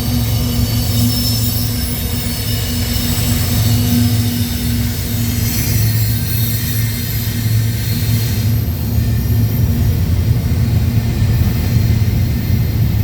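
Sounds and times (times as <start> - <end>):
high-pitched wheel squeal: 0.0 - 9.9
freight train rumbling past: 0.0 - 13.0.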